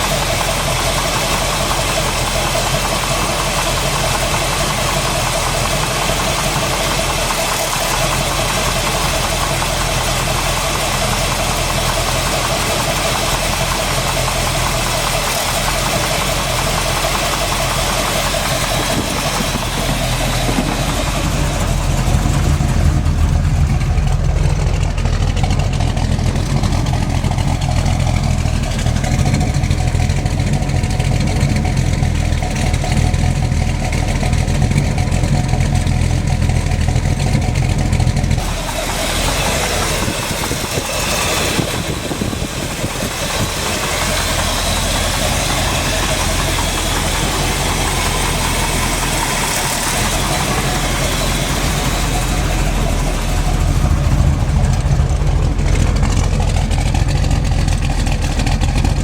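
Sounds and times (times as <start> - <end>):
car engine running: 0.0 - 59.0
engine knock: 0.0 - 59.0.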